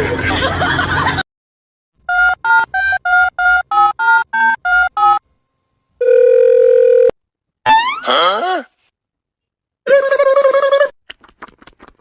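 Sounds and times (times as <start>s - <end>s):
steady phone tone: 6.0s - 7.2s.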